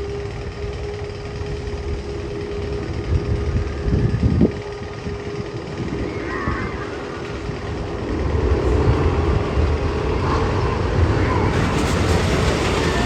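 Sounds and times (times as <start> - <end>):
roller coaster rumbling on track: 0.0 - 13.0
rising hiss: 11.5 - 13.0.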